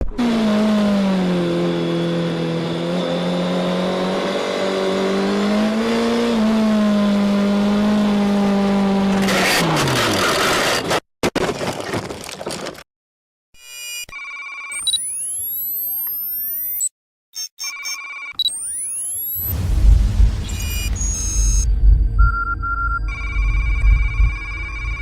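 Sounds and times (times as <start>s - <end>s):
harsh crash noise: 19.4s - 22.2s.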